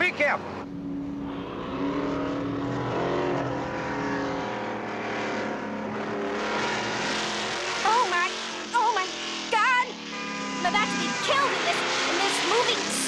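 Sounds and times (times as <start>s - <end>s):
car engines running: 0.0s - 13.0s
vehicles passing: 0.0s - 13.0s
gliding pitches: 0.6s - 6.9s
long steady tones: 0.6s - 7.2s.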